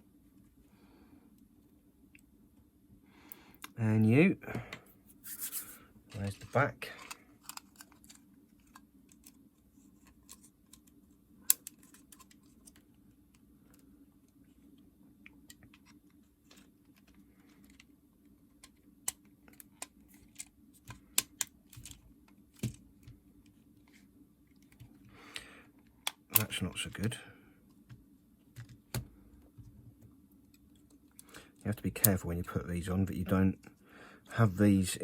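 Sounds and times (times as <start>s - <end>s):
faint steady hum: 0.0s - 35.0s
plastic parts clicking: 18.5s - 23.1s.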